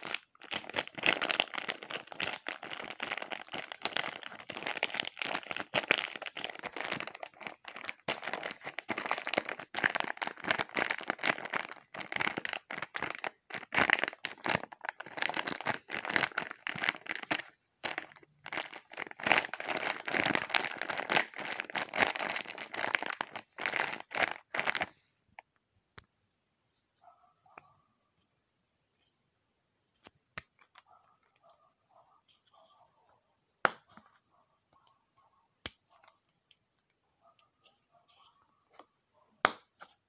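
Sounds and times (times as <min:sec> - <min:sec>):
crinkling and crackling: 0:00.0 - 0:25.6.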